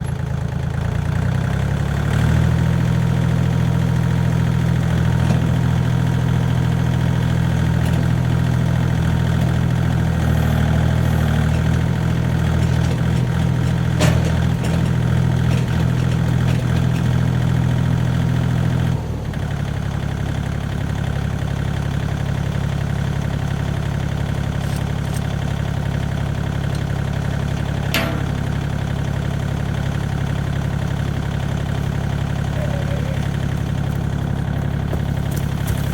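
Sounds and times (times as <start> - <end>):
tractor diesel engine running: 0.0 - 35.9
metallic clanks: 27.6 - 29.4.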